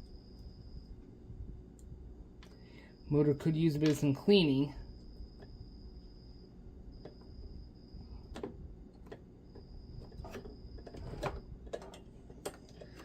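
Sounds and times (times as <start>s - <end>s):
faint high whine: 0.0s - 13.0s
small parts clicking and tapping: 8.3s - 13.0s.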